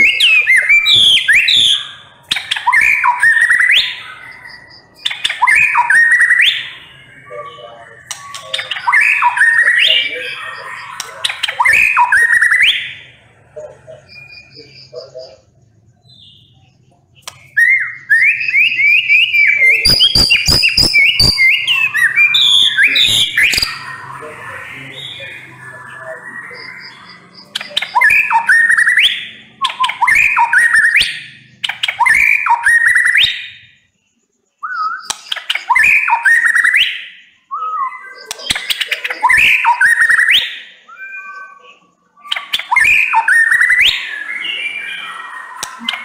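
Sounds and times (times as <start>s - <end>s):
bird singing whistled phrases: 0.0s - 15.4s, 16.0s - 33.8s, 34.6s - 46.0s
sharp bird clicks: 8.0s - 9.4s, 10.8s - 12.6s, 17.1s - 17.7s, 19.8s - 22.6s, 26.6s - 33.3s, 34.8s - 36.8s, 38.2s - 40.4s, 42.2s - 43.9s, 45.5s - 46.0s.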